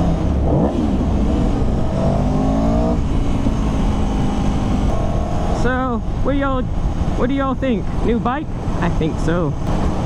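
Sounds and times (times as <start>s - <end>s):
motorcycle engine revving: 0.0s - 7.2s
wind rushing over microphone: 0.0s - 10.0s.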